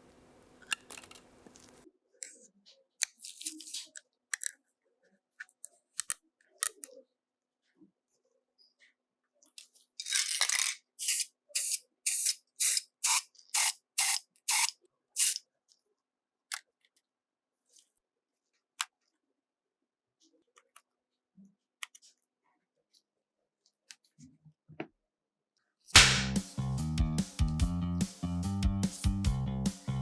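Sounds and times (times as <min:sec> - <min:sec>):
pressurised spray hissing: 0:11.0 - 0:15.4.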